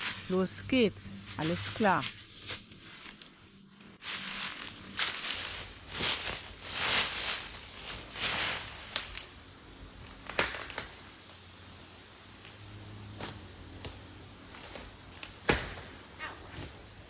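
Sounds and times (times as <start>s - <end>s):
dry material rustling and crunching: 1.2s - 9.4s.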